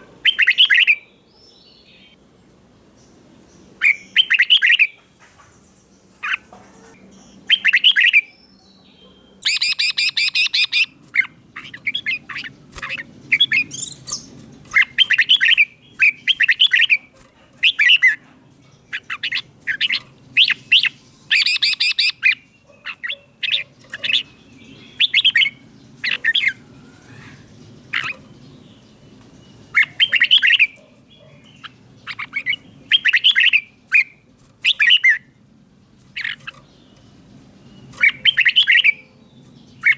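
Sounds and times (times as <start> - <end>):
bird chattering: 0.0 - 1.0, 6.2 - 8.4, 9.0 - 35.3, 36.0 - 39.9
bird singing whistled phrases: 0.3 - 2.1, 3.8 - 5.0, 7.5 - 10.9, 19.2 - 22.4, 24.8 - 25.6.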